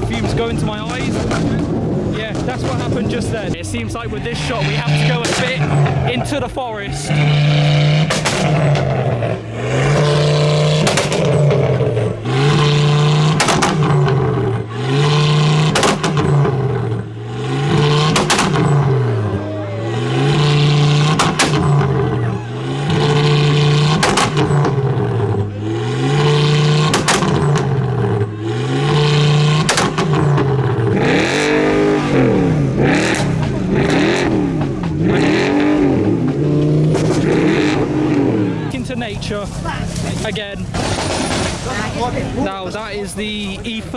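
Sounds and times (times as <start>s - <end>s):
car engine revving: 0.0s - 43.9s
sharp exhaust crack: 0.0s - 43.9s.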